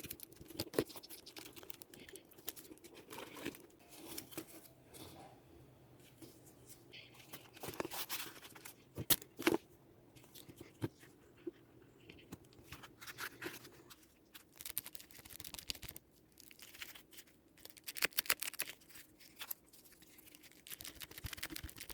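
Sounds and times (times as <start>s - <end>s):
hands scratching and rustling: 12.2s - 21.9s.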